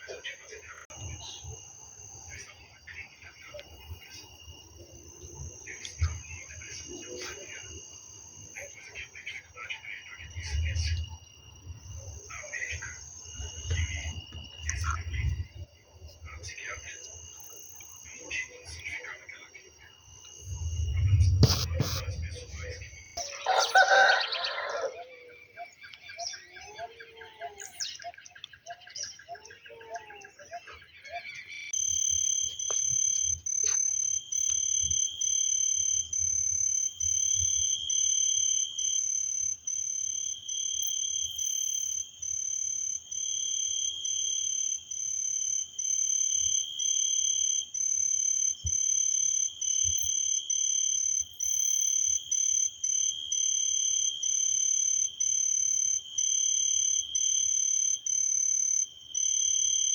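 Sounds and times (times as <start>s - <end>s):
frogs calling in chorus: 21.0s - 59.9s.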